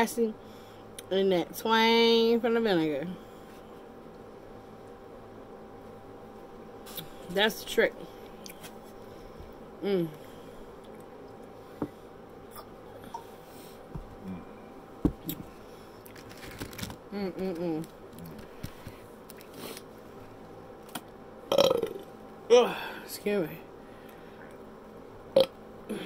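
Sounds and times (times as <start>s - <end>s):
person humming: 9.8s - 10.2s, 14.2s - 14.6s, 17.1s - 18.3s.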